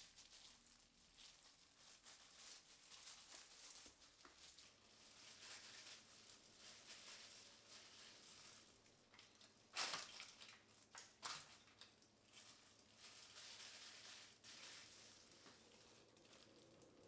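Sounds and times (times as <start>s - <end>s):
crunching crinkling: 0.0s - 17.0s
soft food rustling: 0.0s - 17.0s.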